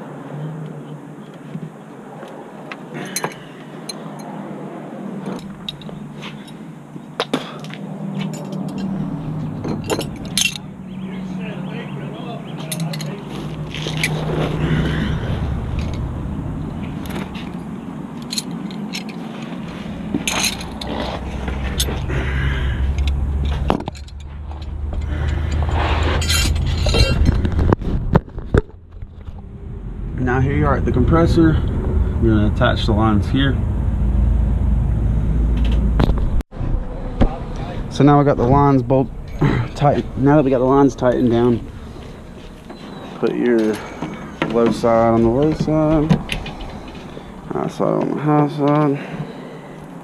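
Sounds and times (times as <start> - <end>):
tools clinking on metal: 3.0 - 4.3, 8.2 - 9.0, 9.6 - 10.7, 12.6 - 14.2, 18.2 - 19.3, 20.2 - 22.0
metal tools clinking: 3.0 - 4.4, 5.3 - 6.6, 8.2 - 10.7, 12.6 - 14.6, 15.7 - 16.1, 16.9 - 22.1, 22.9 - 27.4, 41.2 - 47.7
steady low hum: 13.6 - 48.5.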